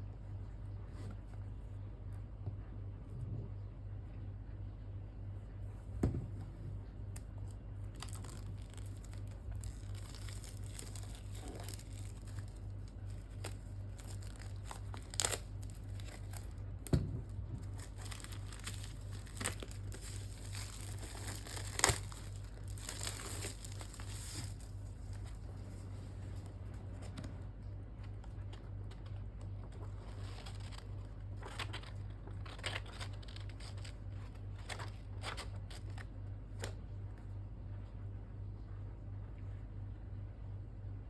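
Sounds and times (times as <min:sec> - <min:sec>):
packaging crinkling and tearing: 0:07.2 - 0:25.8, 0:29.8 - 0:36.8.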